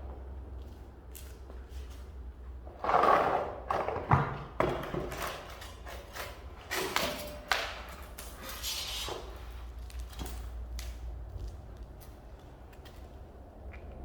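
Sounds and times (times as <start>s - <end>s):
short squeaky scrape: 8.4s - 9.5s.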